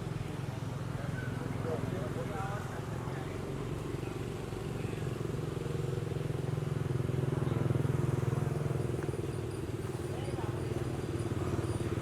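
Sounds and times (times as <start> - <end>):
vehicle engine running: 2.8 - 12.0.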